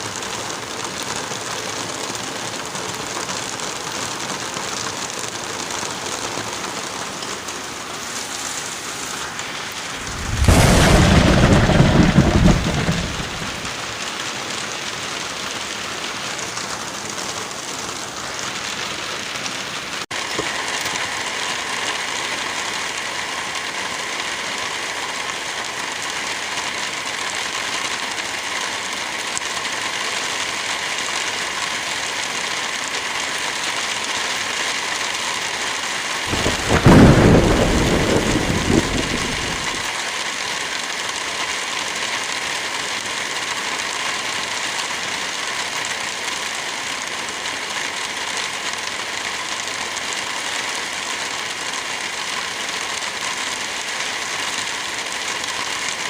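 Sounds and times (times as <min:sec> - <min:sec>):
heavy rain: 0:00.0 - 0:56.0
thunderclap rumbling: 0:09.9 - 0:14.0, 0:36.3 - 0:39.9.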